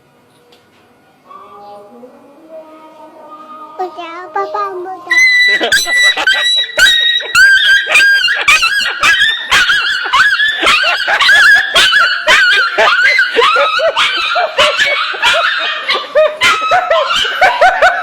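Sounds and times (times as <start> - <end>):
puppy yelping: 5.1 - 17.9.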